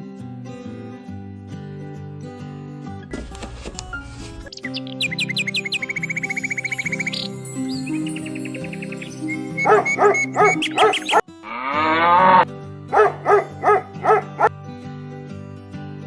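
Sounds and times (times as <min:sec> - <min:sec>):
background music: 0:00.0 - 0:16.0
farm animal calls: 0:09.3 - 0:12.4, 0:13.0 - 0:14.5.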